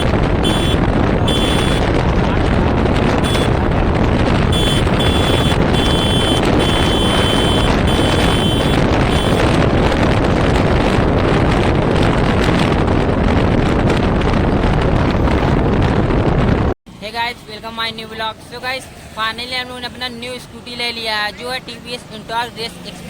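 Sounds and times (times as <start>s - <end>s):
wind rushing over microphone: 0.0s - 16.8s
vehicle noise: 0.0s - 23.0s.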